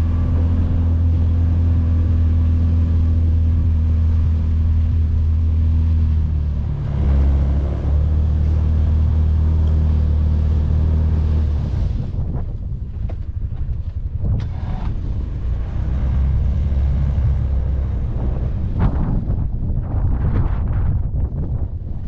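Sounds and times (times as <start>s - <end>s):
utility vehicle engine running: 0.0s - 22.0s.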